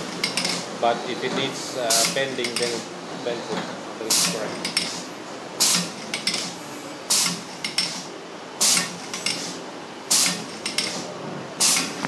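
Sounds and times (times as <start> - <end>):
sharpening machine hissing bursts: 7.1 - 12.0.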